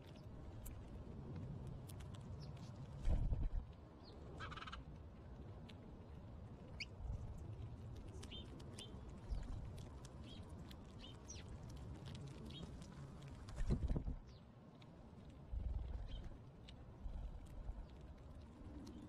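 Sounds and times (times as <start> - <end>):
steady low rumble: 0.0 - 19.0
songbirds chirping: 8.0 - 12.9, 15.9 - 16.9.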